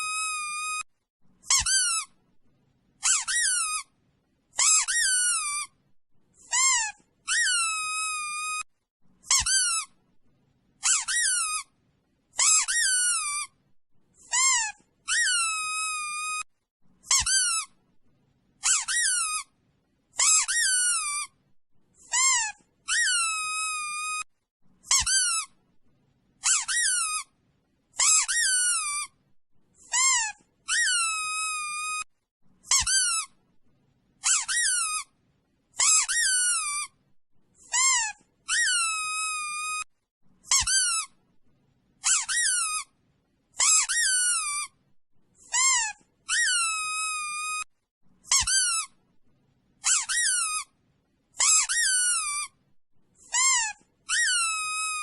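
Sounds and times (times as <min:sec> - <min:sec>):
high-pitched squeaky call: 0:00.0 - 0:02.2, 0:03.0 - 0:05.8, 0:06.4 - 0:10.0, 0:10.8 - 0:13.6, 0:14.2 - 0:17.8, 0:18.6 - 0:21.4, 0:22.0 - 0:25.6, 0:26.4 - 0:29.2, 0:29.8 - 0:33.4, 0:34.2 - 0:35.2, 0:35.8 - 0:37.0, 0:37.6 - 0:41.2, 0:42.0 - 0:43.0, 0:43.6 - 0:44.8, 0:45.4 - 0:49.0, 0:49.8 - 0:50.8, 0:51.4 - 0:52.6, 0:53.2 - 0:55.0.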